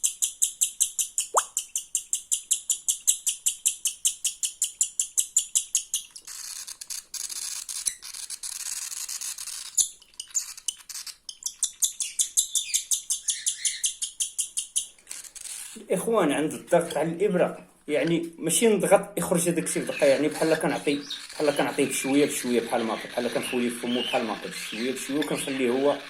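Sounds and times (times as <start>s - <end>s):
bird chick begging chirps: 9.8s - 15.0s, 19.7s - 26.0s.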